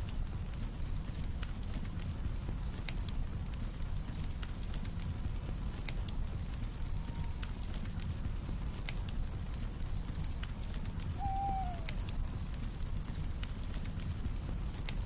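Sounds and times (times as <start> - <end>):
campfire crackling and popping: 0.0 - 15.0
cricket chirping: 0.0 - 15.0
owl hoot: 11.2 - 12.1.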